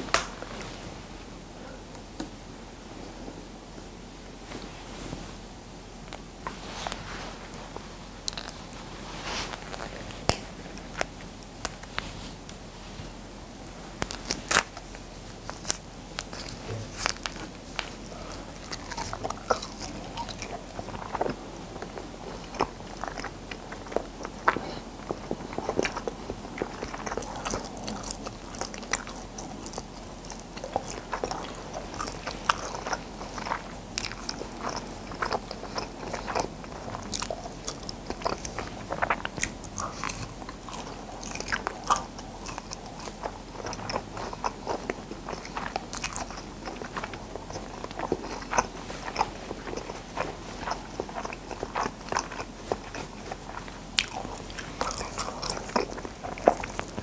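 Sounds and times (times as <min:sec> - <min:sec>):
person chewing crunchy snack: 0:13.6 - 0:57.0.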